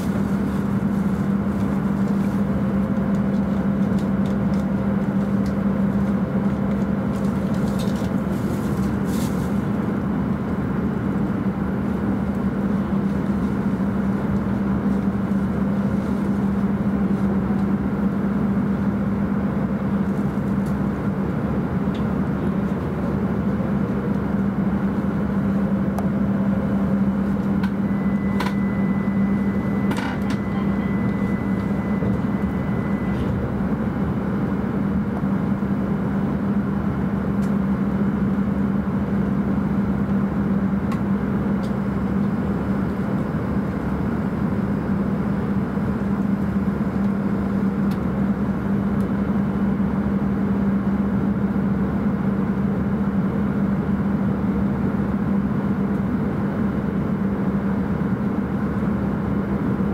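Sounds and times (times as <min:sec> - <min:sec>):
train running noise: 0:00.0 - 0:59.9
low hum: 0:24.9 - 0:36.4.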